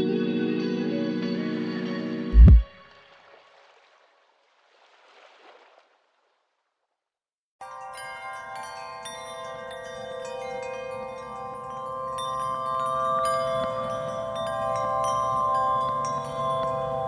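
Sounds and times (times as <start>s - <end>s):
chime-like notes ringing: 7.6s - 17.0s.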